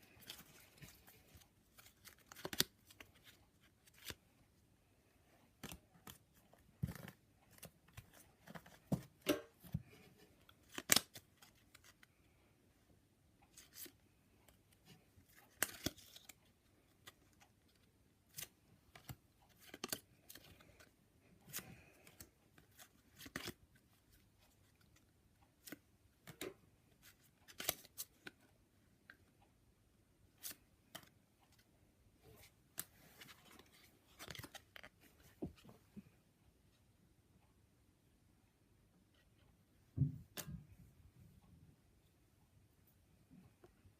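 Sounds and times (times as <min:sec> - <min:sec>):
cards clicking and flicking: 0:00.1 - 0:04.2, 0:10.6 - 0:12.0, 0:15.4 - 0:16.4, 0:27.5 - 0:28.3.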